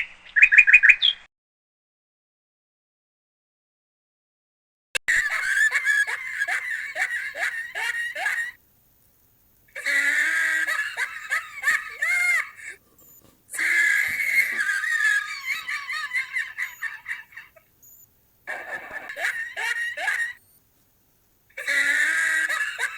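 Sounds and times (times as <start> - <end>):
monkeys chattering and screeching: 5.1 - 8.6, 9.7 - 12.8, 13.5 - 17.7, 18.5 - 20.4, 21.6 - 22.9.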